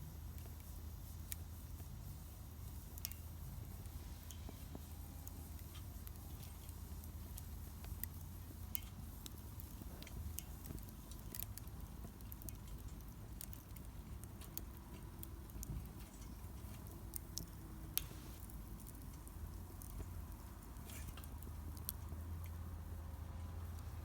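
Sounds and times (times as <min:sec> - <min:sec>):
low steady rumble: 0:00.0 - 0:24.0
wood fire crackling: 0:00.0 - 0:24.0.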